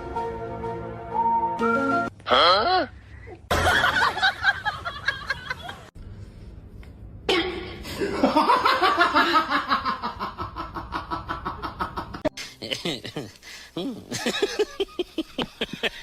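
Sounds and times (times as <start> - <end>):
person laughing: 8.0 - 16.0.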